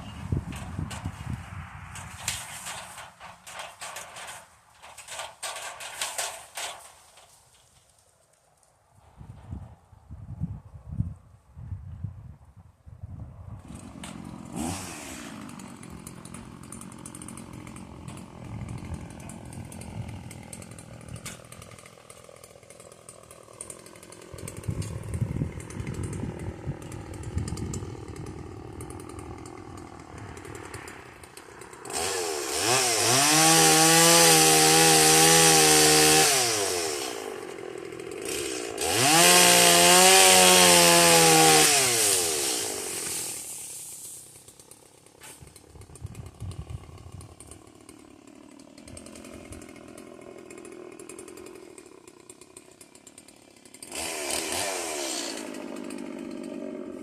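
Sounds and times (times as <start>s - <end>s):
chainsaw revving: 13.6s - 57.0s.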